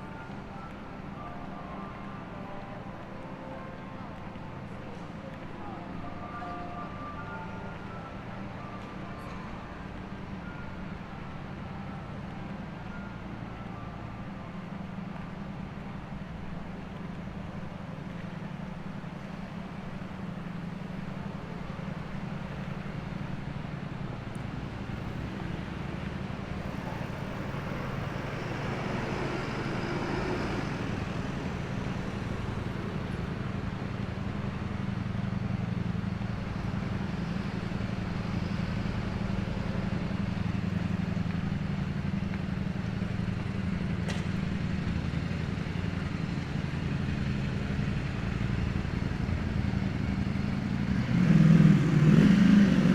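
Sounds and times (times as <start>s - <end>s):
traffic engine hum: 14.2s - 52.9s
vehicles passing: 15.0s - 52.9s.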